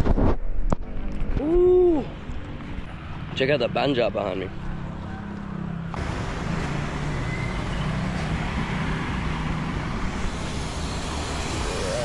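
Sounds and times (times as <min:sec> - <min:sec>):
road and wind noise: 0:00.0 - 0:12.0
vehicle engine running: 0:04.6 - 0:12.0.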